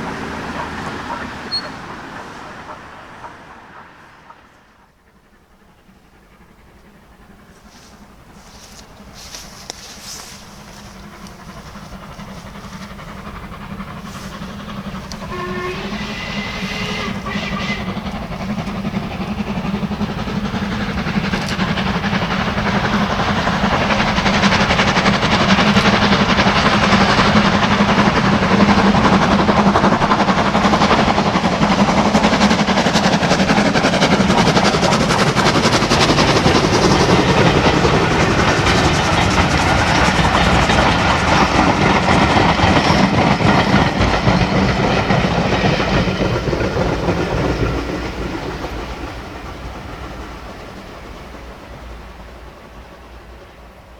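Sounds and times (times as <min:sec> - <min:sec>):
steam whistle: 0:00.0 - 0:02.9, 0:14.1 - 0:18.7
steam train rumble and clatter: 0:00.0 - 0:53.9.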